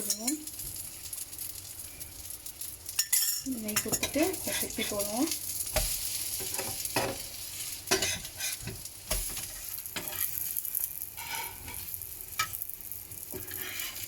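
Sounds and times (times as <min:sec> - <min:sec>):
food sizzling on a griddle: 0:00.0 - 0:14.0
spatula scraping griddle: 0:03.8 - 0:12.6, 0:13.3 - 0:14.0.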